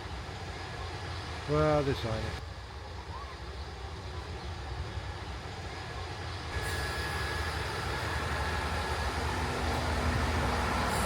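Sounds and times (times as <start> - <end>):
train rumbling: 3.6 - 11.0
faint high-pitched squeal: 5.2 - 11.0.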